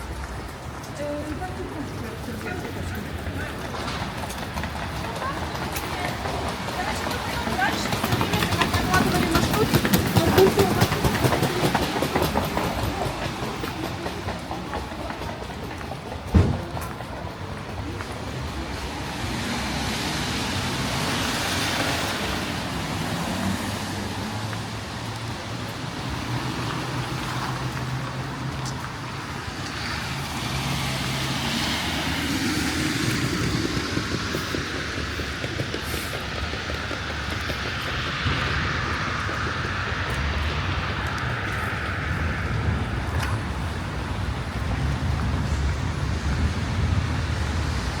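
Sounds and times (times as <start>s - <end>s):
vehicles passing on wet road: 0.0s - 48.0s
low engine hum: 16.1s - 48.0s.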